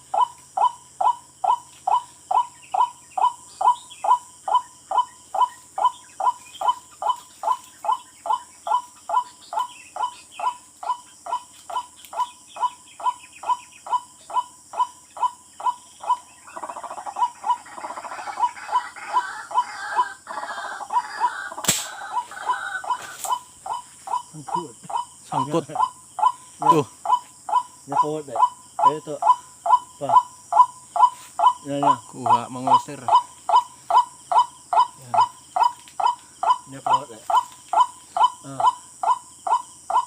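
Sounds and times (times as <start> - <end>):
bird calling sharp notes: 0.0 - 40.0
sharp click: 21.6 - 22.0.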